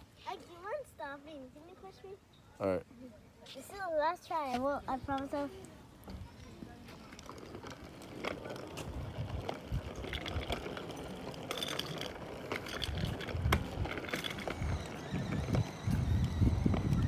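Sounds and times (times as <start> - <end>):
bicycle rolling rumble: 5.9 - 17.0.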